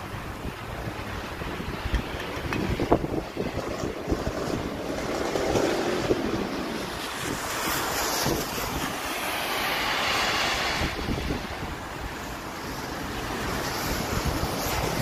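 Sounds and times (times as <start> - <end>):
rain falling: 0.0 - 15.0
wind buffeting microphone: 0.0 - 15.0.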